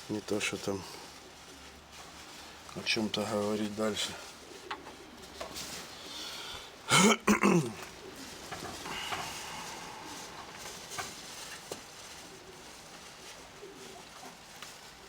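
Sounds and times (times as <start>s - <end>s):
rain hissing: 5.5s - 13.7s
person coughing: 6.9s - 7.8s.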